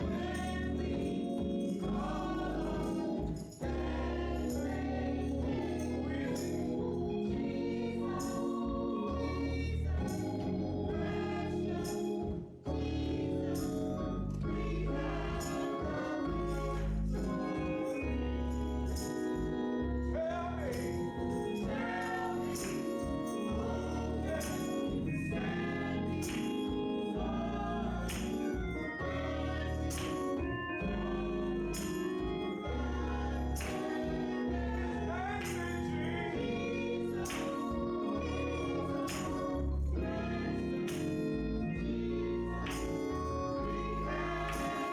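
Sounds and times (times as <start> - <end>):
choir singing: 0.0 - 44.9
instrumental accompaniment: 0.0 - 44.9
steady percussion beat: 33.6 - 34.1.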